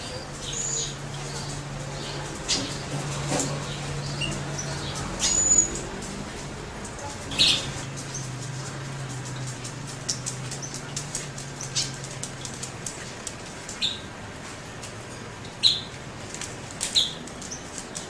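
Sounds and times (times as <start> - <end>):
birds feeding clicks: 0.1 - 18.0
high bird chirps: 4.0 - 5.9, 7.3 - 8.4, 15.5 - 15.9.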